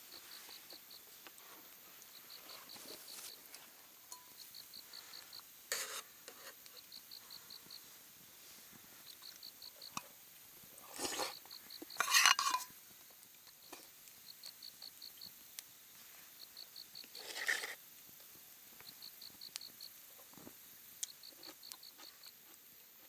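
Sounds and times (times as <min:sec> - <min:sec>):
insect chirping trills: 0:00.0 - 0:23.0
cookware clattering: 0:12.0 - 0:12.7.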